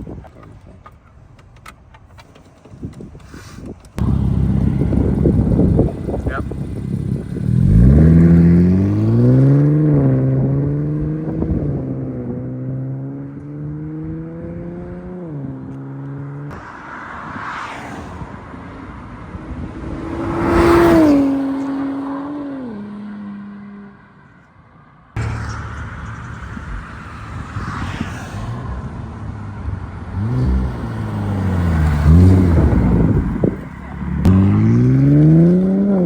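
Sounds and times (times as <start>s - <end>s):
car engine revving: 4.0s - 16.5s, 25.2s - 36.0s.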